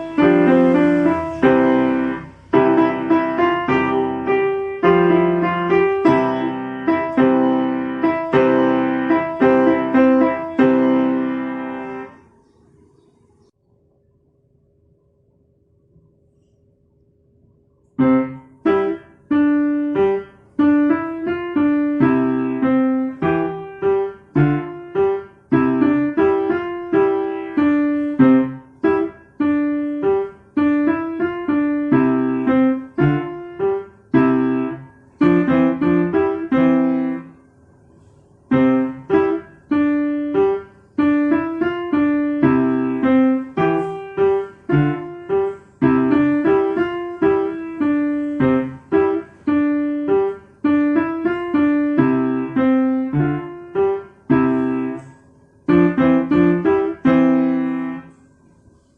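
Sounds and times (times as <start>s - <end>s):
piano simple tune: 0.0s - 12.4s, 17.9s - 58.9s.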